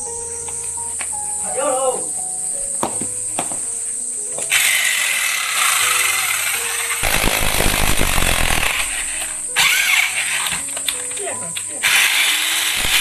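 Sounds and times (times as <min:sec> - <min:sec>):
background music: 0:00.0 - 0:13.0
hammer drill running: 0:04.5 - 0:10.5, 0:11.9 - 0:13.0.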